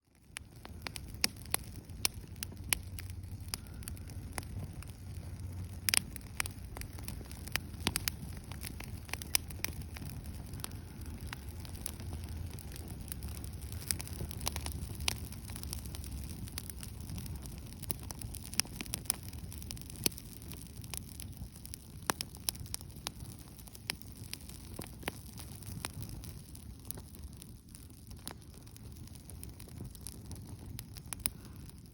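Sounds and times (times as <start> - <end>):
bonfire crackling and popping: 0.0 - 31.9
low rumble: 0.3 - 18.2.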